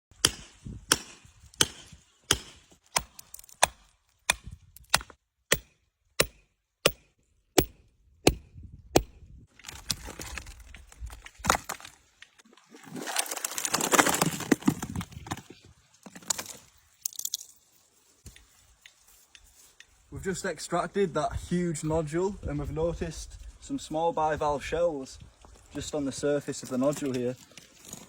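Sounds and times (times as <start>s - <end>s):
hammer striking rock: 0.1s - 9.2s.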